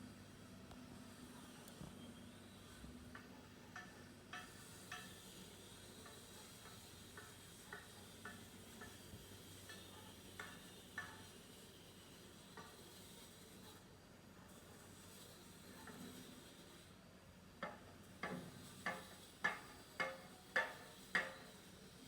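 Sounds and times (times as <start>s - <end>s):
faint ticks and clicks: 17.6s - 21.6s.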